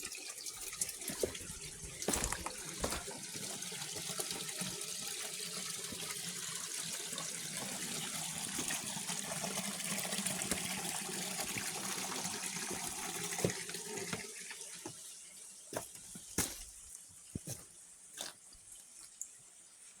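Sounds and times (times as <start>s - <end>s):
running water rushing: 0.0s - 14.9s.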